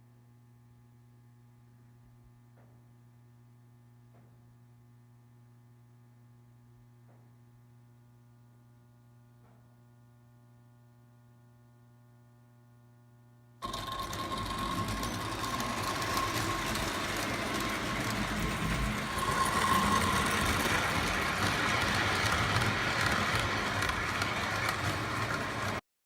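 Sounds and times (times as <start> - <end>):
toy train wheels rattling: 13.6 - 25.8.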